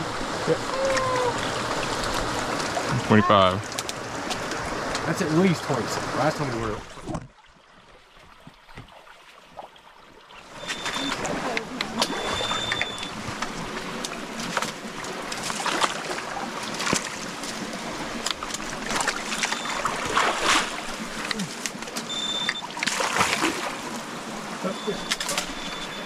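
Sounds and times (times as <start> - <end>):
people wading and splashing: 0.0 - 26.0
short high electronic beep: 12.1 - 13.1, 22.1 - 22.6.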